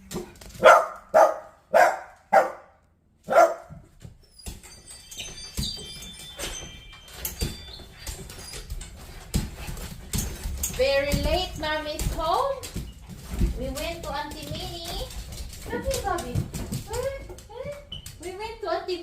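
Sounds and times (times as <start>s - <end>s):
dog barking: 0.6s - 3.7s.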